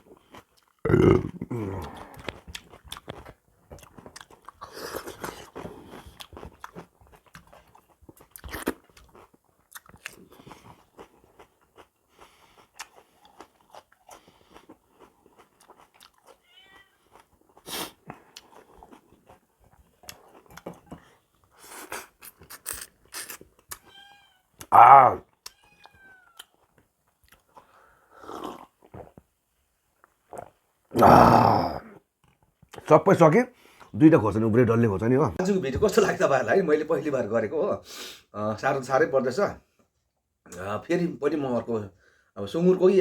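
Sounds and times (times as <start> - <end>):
chewing and crunching food: 0.0 - 32.9
mouth clicks and smacks: 21.8 - 23.9.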